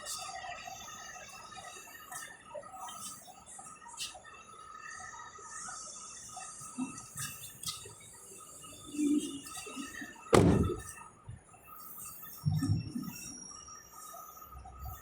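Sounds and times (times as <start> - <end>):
car door shutting: 10.4 - 10.8
light knocks: 10.4 - 10.9.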